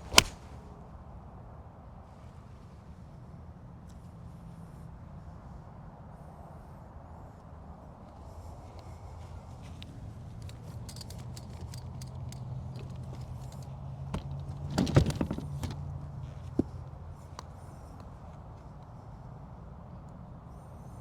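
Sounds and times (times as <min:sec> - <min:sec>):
sharp click: 0:00.0 - 0:00.4
light clinking and rattling: 0:09.6 - 0:17.4.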